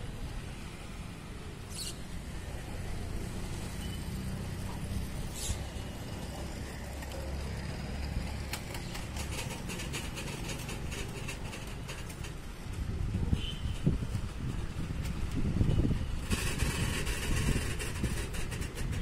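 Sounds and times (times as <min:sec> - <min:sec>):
freight wagons rumbling: 0:02.2 - 0:19.0
metallic clicks and rattles: 0:08.1 - 0:12.7.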